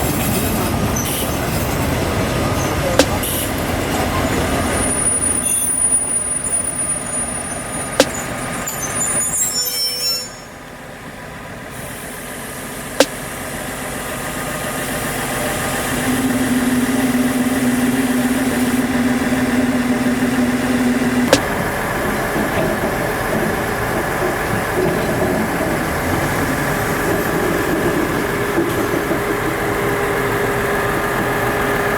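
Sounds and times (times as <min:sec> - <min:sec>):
train rumbling on track: 0:00.0 - 0:31.9
steady hum: 0:16.1 - 0:21.6.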